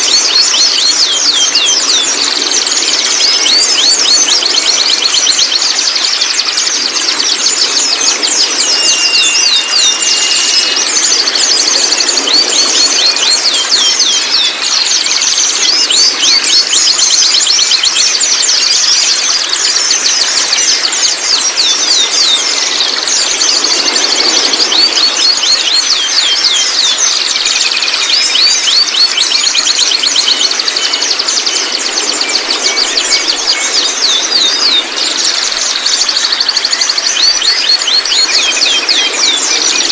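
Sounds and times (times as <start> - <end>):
young birds chattering: 0.0 - 16.9
steady whistle: 0.0 - 17.8.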